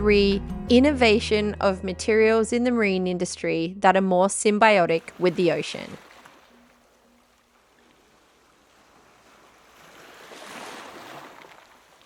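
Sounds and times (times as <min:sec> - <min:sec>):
soft water rush: 0:04.9 - 0:12.0.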